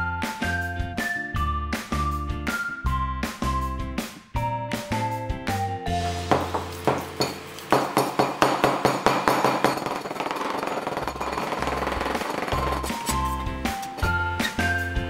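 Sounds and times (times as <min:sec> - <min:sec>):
background music: 0:00.0 - 0:09.8, 0:10.9 - 0:15.0
cleaver chopping on cutting board: 0:06.3 - 0:09.8.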